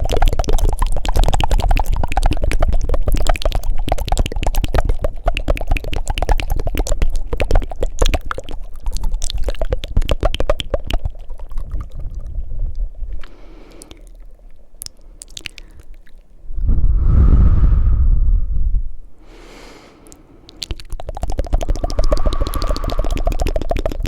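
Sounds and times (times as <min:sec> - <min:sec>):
wet tongue flutters and clicks: 0:00.0 - 0:16.3, 0:20.0 - 0:24.0
loud breath into microphone: 0:13.2 - 0:14.0, 0:19.2 - 0:20.6, 0:21.7 - 0:23.8.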